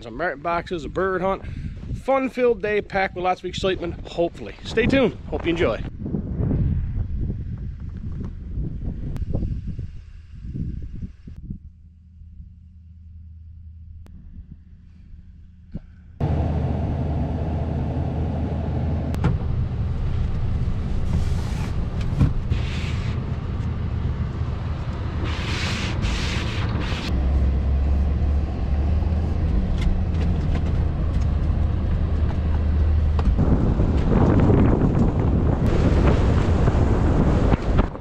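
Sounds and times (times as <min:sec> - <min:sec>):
vehicle engine running: 0:11.6 - 0:26.2, 0:27.1 - 0:36.0.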